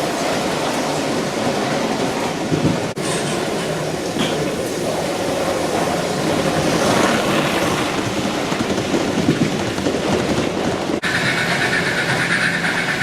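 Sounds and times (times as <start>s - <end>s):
model train clattering on track: 6.6s - 13.0s.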